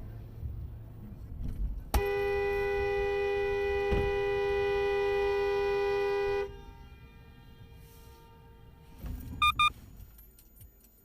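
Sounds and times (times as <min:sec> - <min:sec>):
car horn blast: 0:02.0 - 0:07.1, 0:08.1 - 0:09.7.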